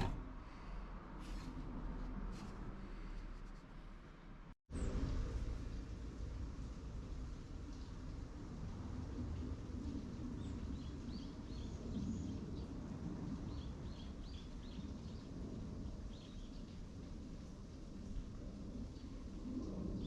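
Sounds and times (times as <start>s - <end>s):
low outdoor rumble: 0.0s - 11.4s.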